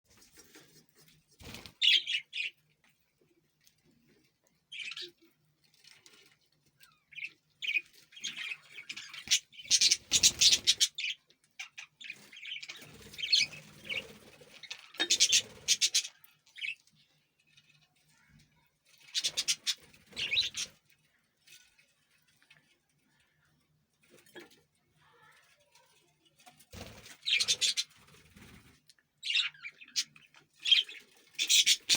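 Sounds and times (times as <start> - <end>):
parrot squawking and chirping: 6.9 - 16.8, 19.1 - 20.7, 27.2 - 28.0, 29.2 - 31.9.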